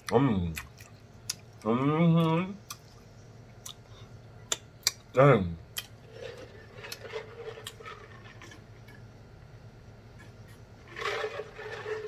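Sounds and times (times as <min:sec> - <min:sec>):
man chewing and lip-smacking: 0:00.0 - 0:05.1, 0:05.7 - 0:06.0.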